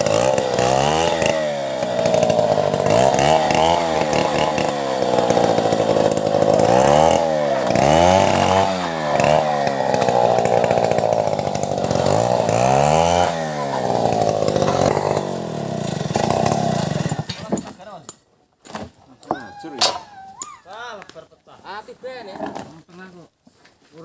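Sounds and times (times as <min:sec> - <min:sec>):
chainsaw ripping timber: 0:00.0 - 0:18.0.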